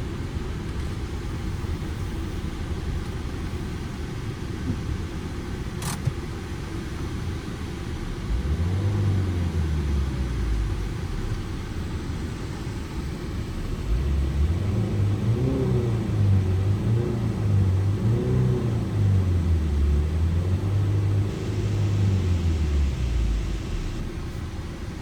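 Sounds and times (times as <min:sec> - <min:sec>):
van engine and road rumble: 0:00.0 - 0:25.0.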